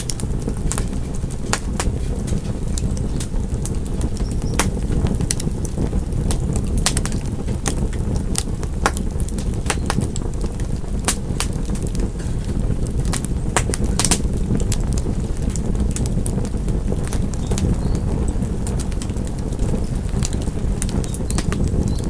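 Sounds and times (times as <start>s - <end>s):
low roar of flames: 0.0s - 22.0s
wood fire crackling: 0.0s - 22.0s.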